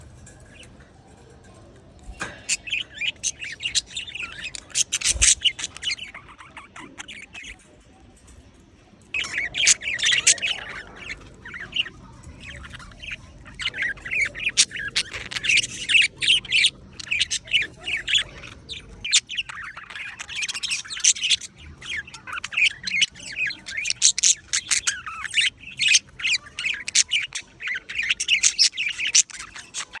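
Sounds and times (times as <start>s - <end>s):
budgerigar chattering: 9.2s - 30.0s.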